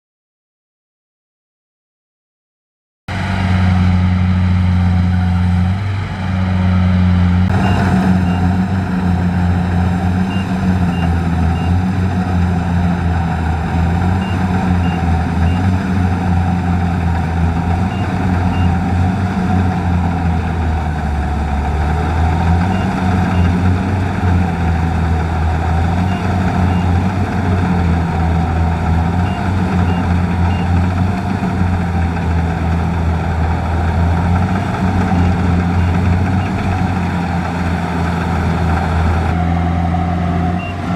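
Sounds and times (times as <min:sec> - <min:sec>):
diesel engine deep hum: 0:03.1 - 0:40.9.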